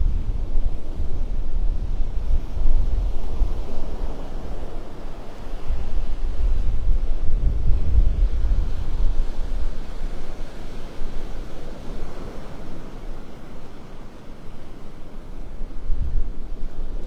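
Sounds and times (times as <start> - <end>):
surf washing: 0.0 - 17.0
wind buffeting microphone: 0.0 - 17.0.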